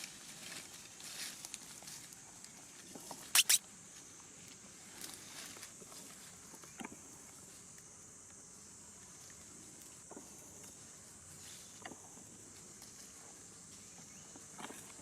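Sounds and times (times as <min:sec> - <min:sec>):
high-pitched insect chorus: 0:03.2 - 0:15.0.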